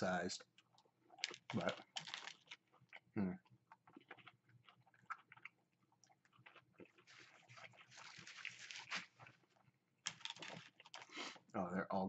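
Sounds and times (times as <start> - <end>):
person chewing: 0.5 - 11.5.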